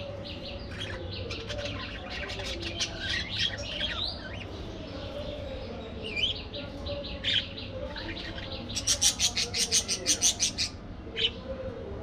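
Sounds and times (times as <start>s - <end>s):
budgerigars chirping and warbling: 0.2s - 4.5s, 7.2s - 11.4s.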